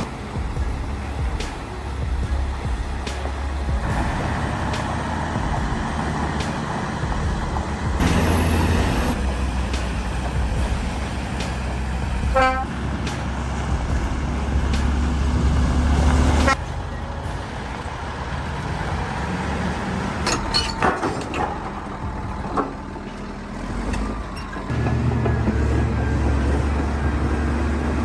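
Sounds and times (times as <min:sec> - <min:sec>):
truck horn blast: 0:00.0 - 0:22.3
heavy truck engine rumbling: 0:00.0 - 0:28.0.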